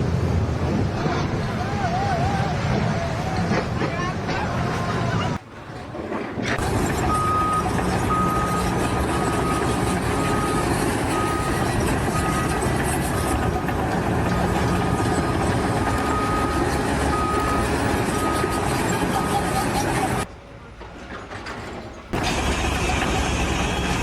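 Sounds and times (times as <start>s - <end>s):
heavy engine running: 6.4s - 24.0s
reversing alarm beeping: 6.9s - 20.2s.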